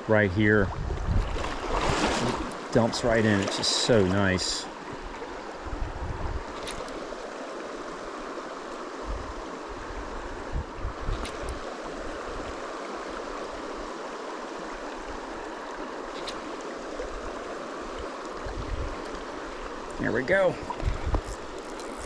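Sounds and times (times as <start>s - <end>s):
stream rushing over gravel: 1.1s - 5.8s.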